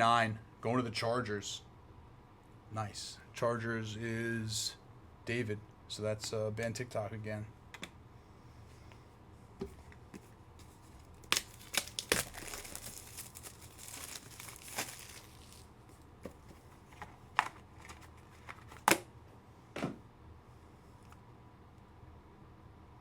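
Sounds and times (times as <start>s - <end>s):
foil wrappers tearing and crinkling: 10.6s - 15.9s
cards clicking and tapping: 16.2s - 19.1s.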